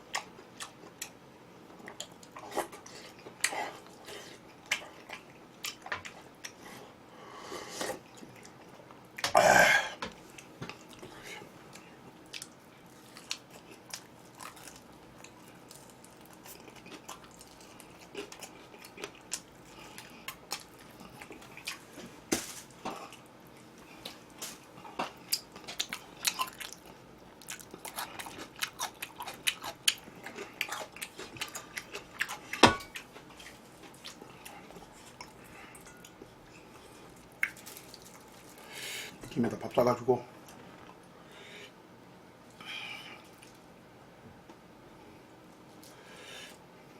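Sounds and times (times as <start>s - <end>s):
person chewing crunchy food: 7.8s - 39.2s.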